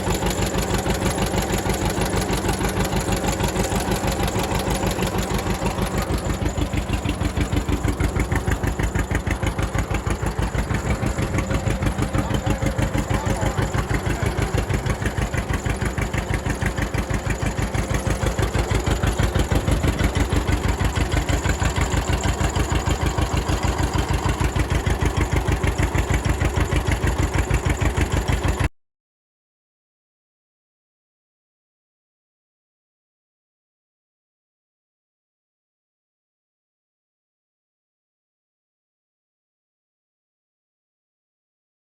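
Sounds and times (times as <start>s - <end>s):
tractor engine idling: 0.0s - 28.7s.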